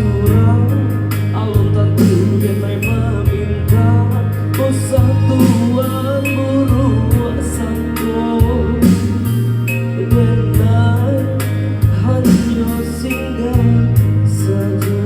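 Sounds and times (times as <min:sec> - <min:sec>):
bass line: 0:00.0 - 0:15.0
live band playing: 0:00.0 - 0:15.0
drum strokes: 0:04.9 - 0:08.1.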